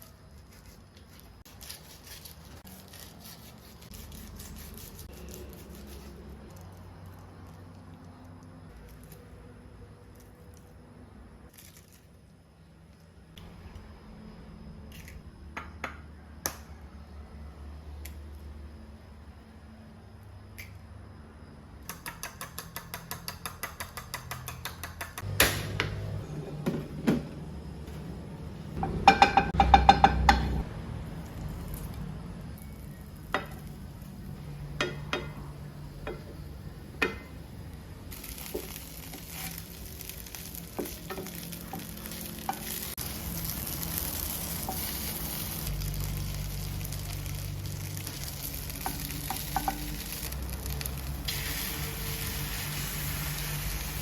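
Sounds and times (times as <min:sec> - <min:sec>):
food sizzling: 0:32.7 - 0:54.0.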